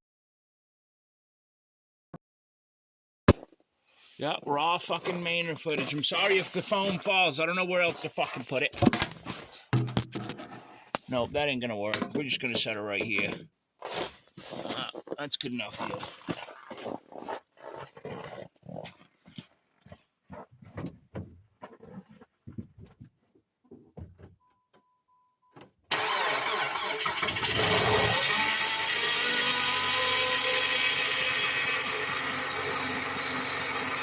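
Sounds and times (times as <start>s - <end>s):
knocks and clicks: 8.8s - 10.4s
car engine cranking and starting: 25.6s - 29.6s
car engine fast idle: 25.9s - 28.4s.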